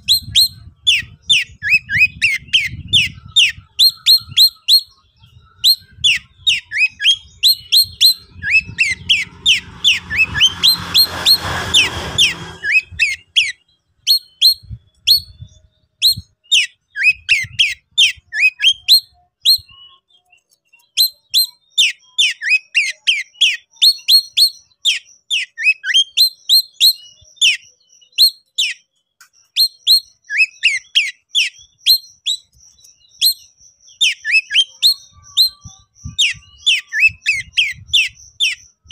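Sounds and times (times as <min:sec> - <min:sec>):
songbird whistling: 0:00.0 - 0:38.9
rough rushing noise: 0:08.1 - 0:13.4.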